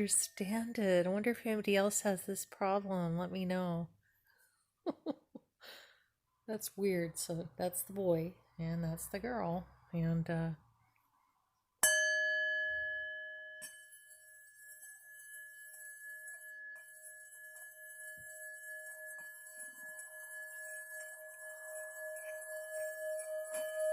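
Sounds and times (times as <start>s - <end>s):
singing bowl ringing: 11.8s - 23.9s
mallet rubbed around bowl rim: 13.6s - 23.9s.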